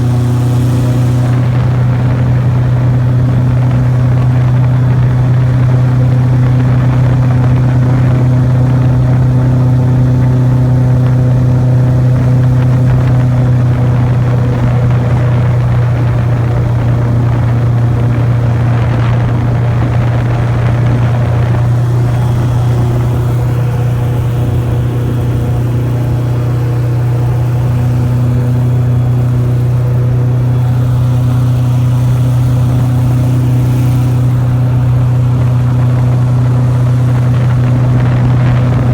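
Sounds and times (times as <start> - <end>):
airboat engine and propeller drone: 0.0 - 38.9.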